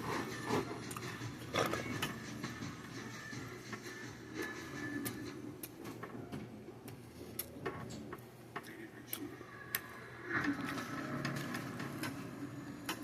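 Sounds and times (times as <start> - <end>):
cutlery and dishes clinking: 0.9 - 2.2.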